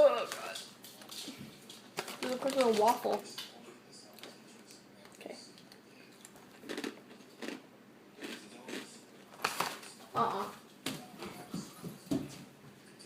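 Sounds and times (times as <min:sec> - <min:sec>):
crunchy cheese crisp chewed: 0:05.1 - 0:10.0.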